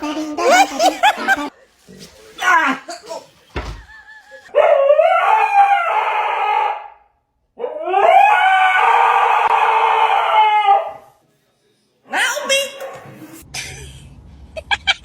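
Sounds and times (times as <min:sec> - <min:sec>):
dog howling: 0:07.6 - 0:11.0.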